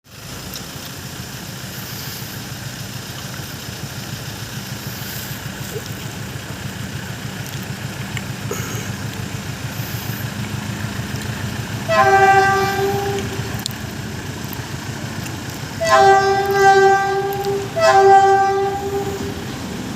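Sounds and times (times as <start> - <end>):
diesel train rumbling: 0.0 - 19.9
train horn blast: 11.7 - 13.8, 15.8 - 19.7.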